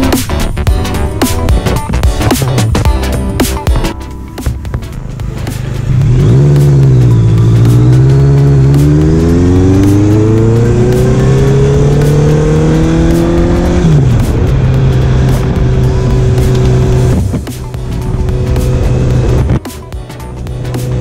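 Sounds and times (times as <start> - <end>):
motorcycle engine revving: 4.4 - 19.7.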